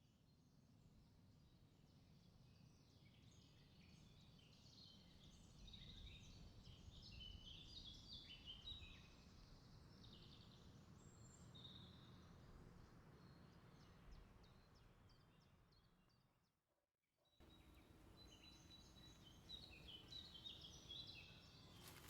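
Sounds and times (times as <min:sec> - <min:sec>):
faint birdsong chirps and trills: 0:17.4 - 0:22.0.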